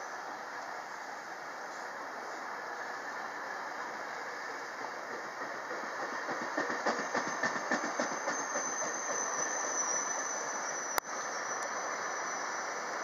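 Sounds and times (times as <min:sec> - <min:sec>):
train wheels clicking over joints: 0:04.2 - 0:11.0.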